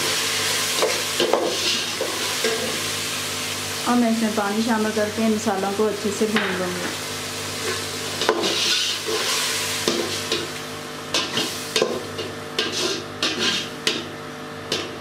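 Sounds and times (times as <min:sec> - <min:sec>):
masala sizzling in a pot: 0:00.0 - 0:15.0
metal spoon scraping a pot: 0:08.2 - 0:09.3, 0:12.6 - 0:13.8.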